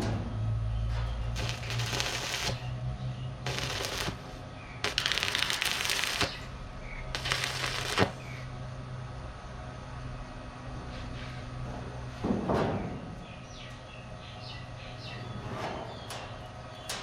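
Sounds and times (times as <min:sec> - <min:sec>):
low electrical hum: 0:00.0 - 0:17.0
welding crackle: 0:01.3 - 0:02.8, 0:03.4 - 0:08.5.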